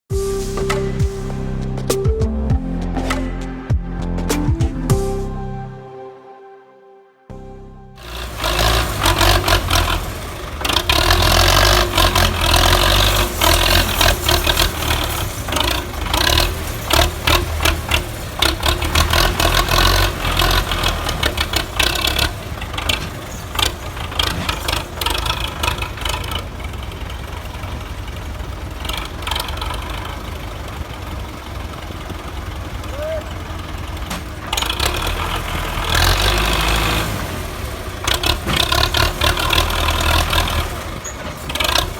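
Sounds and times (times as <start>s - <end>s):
tractor diesel engine under load: 8.0s - 41.9s
trailer clattering and rattling: 8.0s - 41.9s.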